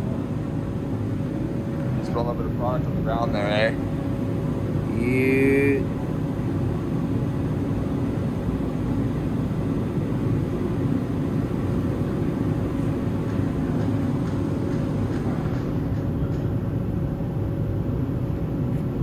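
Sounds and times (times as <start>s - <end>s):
truck engine running steadily: 0.0s - 19.0s.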